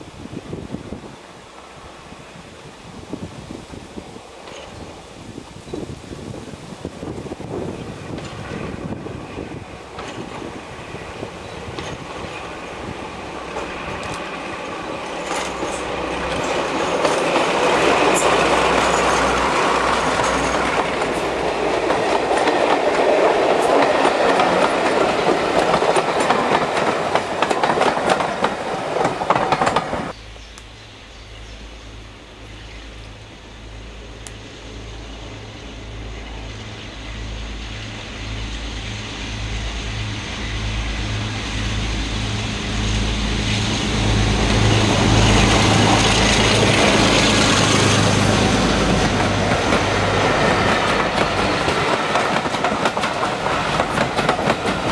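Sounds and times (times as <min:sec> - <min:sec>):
diesel locomotive passing: 0:00.0 - 0:54.9
wheels clicking over rail joints: 0:04.3 - 0:05.1, 0:07.1 - 0:30.2, 0:44.4 - 0:54.9.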